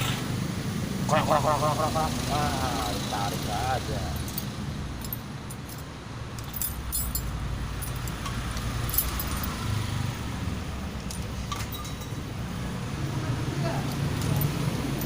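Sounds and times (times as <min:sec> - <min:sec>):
metallic clinks of tools: 0:04.0 - 0:09.8, 0:11.0 - 0:12.3.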